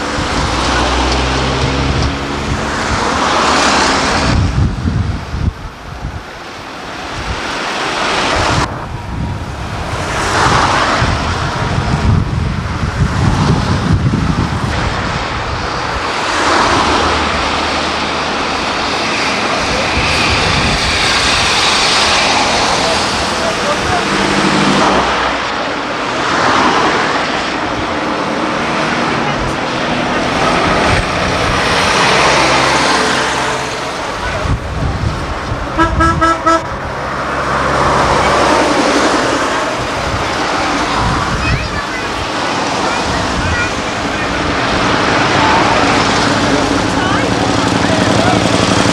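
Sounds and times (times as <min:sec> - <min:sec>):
engine drone: 0:00.0 - 0:06.6, 0:08.6 - 0:48.9
car horn tooting: 0:35.7 - 0:36.7.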